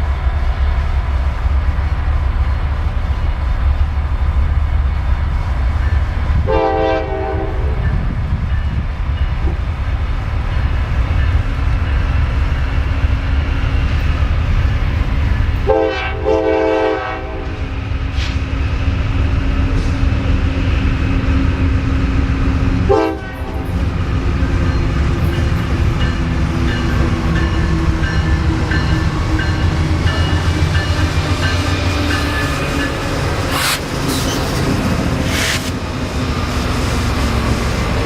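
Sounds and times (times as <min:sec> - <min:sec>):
passing train rumble: 0:00.0 - 0:38.0
locomotive air horn blasts: 0:06.4 - 0:07.9, 0:15.6 - 0:17.6, 0:22.9 - 0:23.8.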